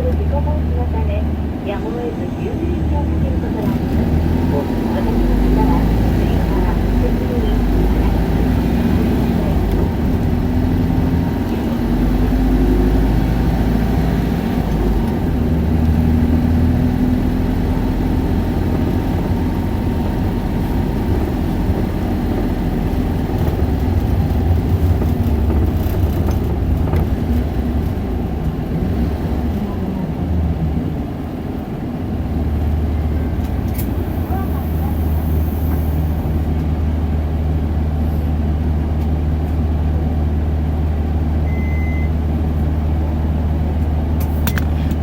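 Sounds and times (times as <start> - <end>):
bus engine rumble: 0.0 - 45.0
road noise: 0.0 - 45.0.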